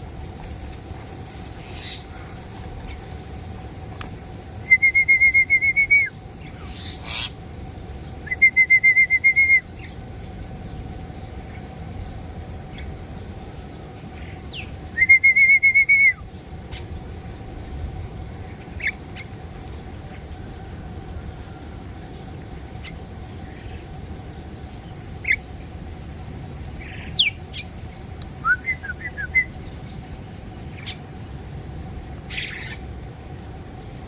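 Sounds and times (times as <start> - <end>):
bird trilling: 4.7 - 7.4, 32.3 - 32.8.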